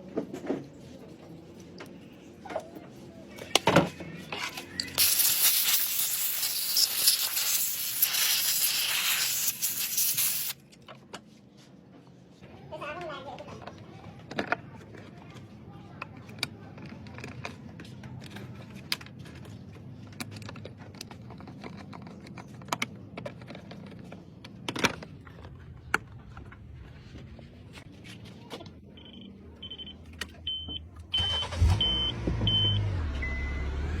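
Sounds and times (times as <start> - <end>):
clicks and handling noises: 13.4 - 29.0.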